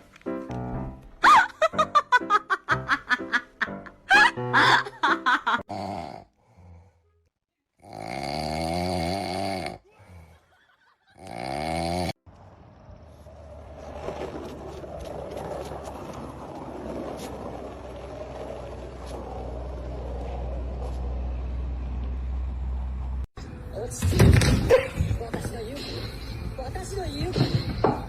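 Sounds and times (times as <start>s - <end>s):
pet snoring: 5.7s - 6.4s, 7.8s - 9.8s, 11.2s - 12.2s.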